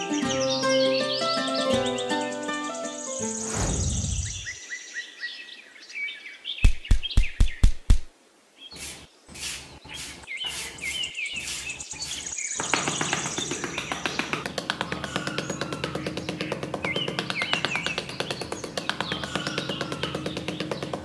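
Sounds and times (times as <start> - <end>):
music: 0.0 - 3.5
birds chirping: 0.0 - 21.0
sharp knocks: 6.6 - 8.1, 12.6 - 21.0
trowel scraping through sand: 8.8 - 12.4.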